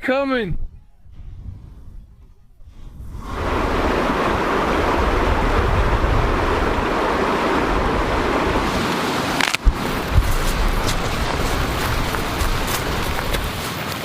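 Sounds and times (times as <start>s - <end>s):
fast river rushing: 3.2s - 14.0s.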